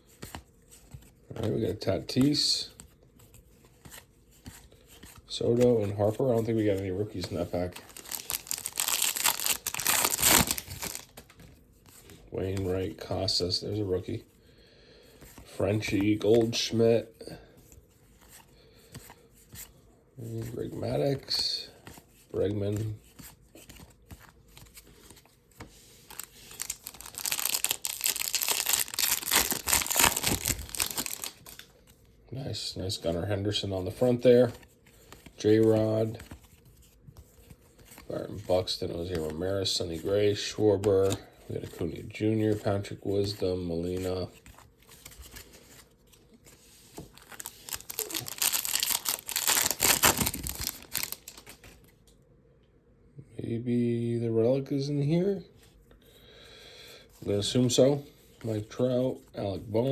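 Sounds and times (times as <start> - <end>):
foil wrapper tearing and crinkling: 7.8 - 11.2, 26.1 - 31.6, 47.1 - 51.7.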